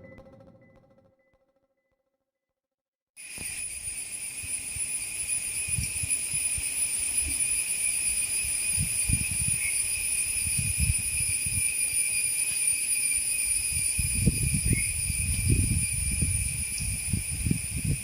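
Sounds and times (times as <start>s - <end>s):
high-pitched ringing drone: 0.0s - 1.3s, 3.2s - 18.0s.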